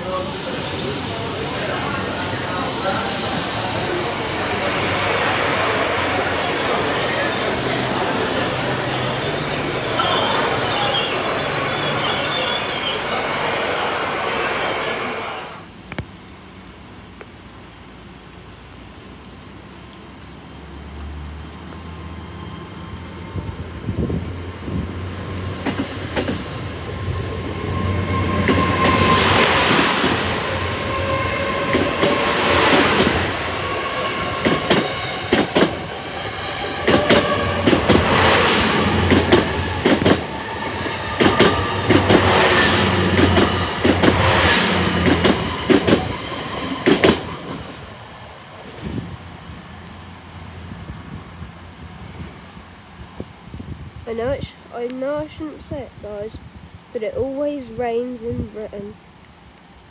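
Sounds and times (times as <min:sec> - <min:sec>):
train diesel engine hum: 0:00.0 - 0:15.7, 0:21.9 - 0:53.5
high wheel squeal: 0:00.1 - 0:15.6, 0:26.7 - 0:47.9.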